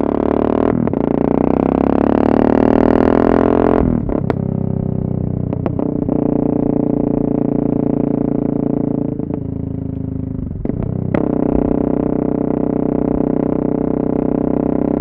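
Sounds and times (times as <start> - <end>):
loud motorcycle exhaust: 0.0 - 15.0.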